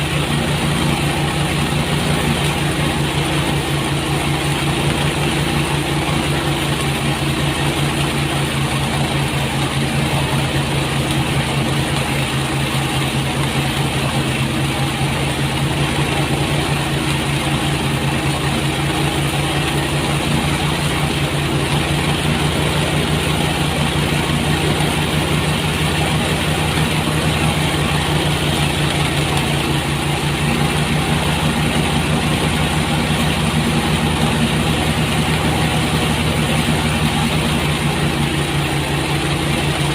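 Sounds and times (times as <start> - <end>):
thresher engine running: 0.0 - 39.9.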